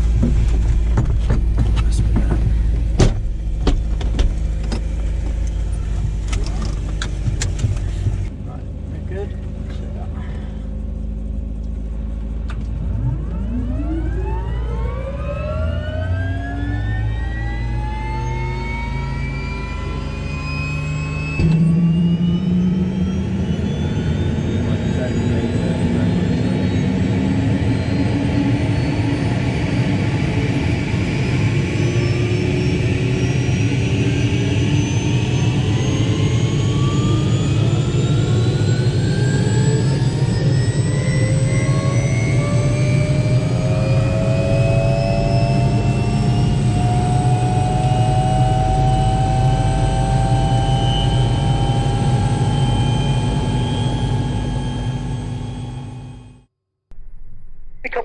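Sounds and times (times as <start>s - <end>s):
low engine rumble: 0.0s - 14.4s
helicopter turbine whine: 1.2s - 56.5s.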